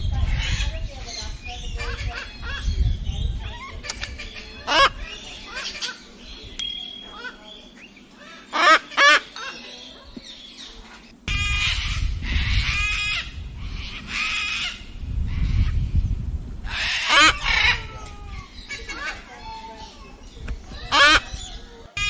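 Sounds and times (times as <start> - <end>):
cockatoo squawking: 3.4 - 6.2, 7.0 - 9.7, 16.7 - 20.0, 20.7 - 22.0
low rumble: 11.2 - 16.8.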